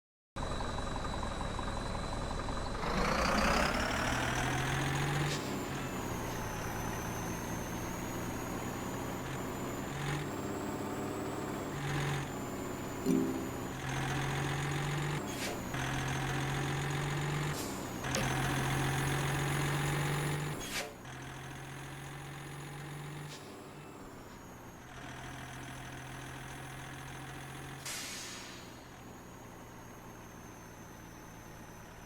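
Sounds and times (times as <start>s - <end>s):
truck diesel engine drone: 0.4s - 32.0s
short air hisses: 27.9s - 28.6s.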